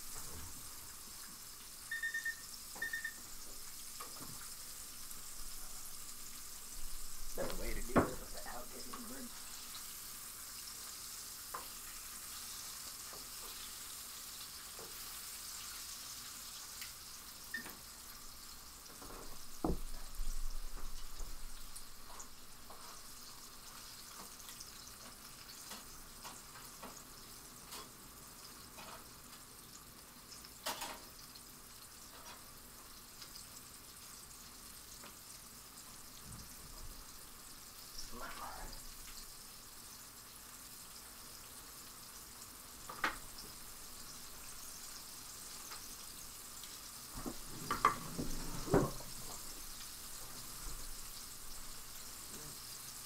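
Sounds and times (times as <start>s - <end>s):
chicken sizzling in oil: 0.0s - 53.0s
thump: 19.1s - 19.9s, 47.2s - 49.0s.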